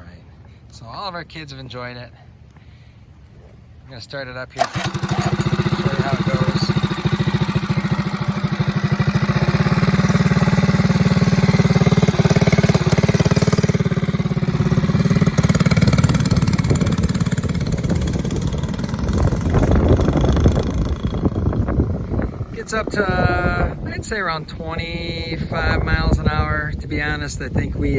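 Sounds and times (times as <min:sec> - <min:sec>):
small engine puttering: 0:04.6 - 0:23.8.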